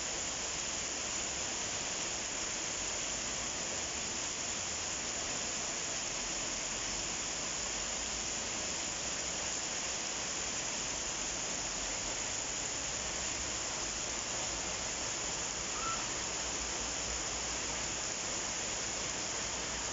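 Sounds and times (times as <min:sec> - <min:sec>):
steady rain falling: 0:00.0 - 0:19.9.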